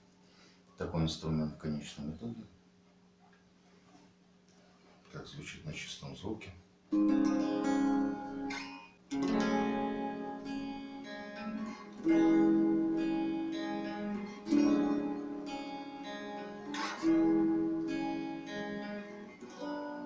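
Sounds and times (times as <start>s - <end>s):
electric guitar chords ringing: 6.9s - 20.0s.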